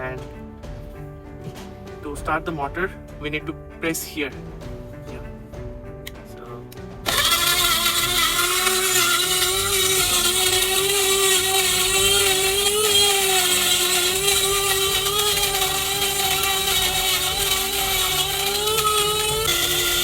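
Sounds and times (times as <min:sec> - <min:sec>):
electric grinder motor whining: 0:07.0 - 0:20.0.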